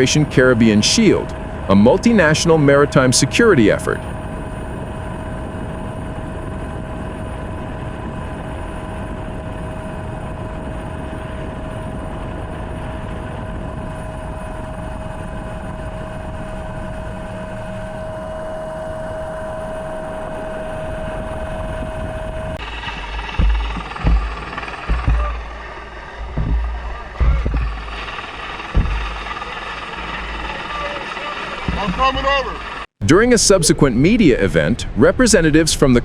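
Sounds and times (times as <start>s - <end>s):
helicopter engine whine: 0.0s - 33.7s
rushing rotor noise: 15.8s - 32.9s.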